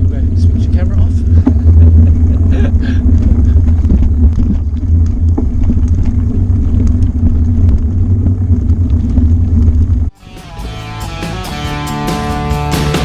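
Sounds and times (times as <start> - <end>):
bike jolting: 0.0 - 10.1
wind on microphone: 0.0 - 10.1
bicycle rumbling on bumpy path: 0.0 - 10.2.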